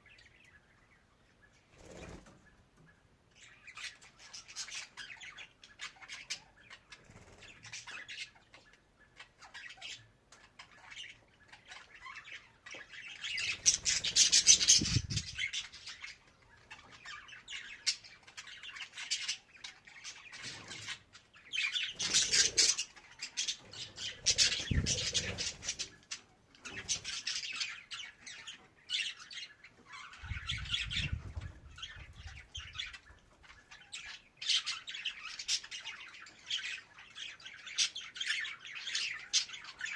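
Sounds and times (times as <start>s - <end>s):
budgerigar chattering and warbling: 21.6s - 26.1s.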